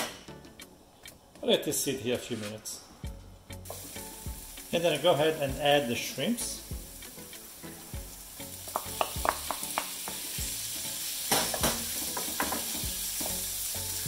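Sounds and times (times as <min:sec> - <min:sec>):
shrimp sizzling in oil: 0:03.6 - 0:14.0
wooden spoon knocking on pan: 0:08.7 - 0:10.0, 0:11.3 - 0:13.3.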